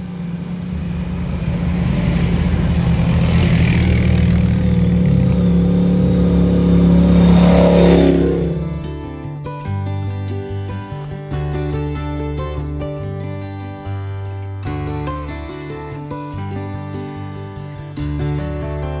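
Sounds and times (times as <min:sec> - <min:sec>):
atv engine revving: 0:00.0 - 0:09.4
acoustic guitar music: 0:00.0 - 0:19.0.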